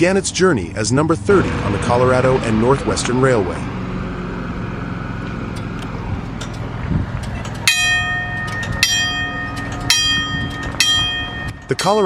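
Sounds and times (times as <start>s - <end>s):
steam locomotive bell ringing: 7.3s - 12.0s.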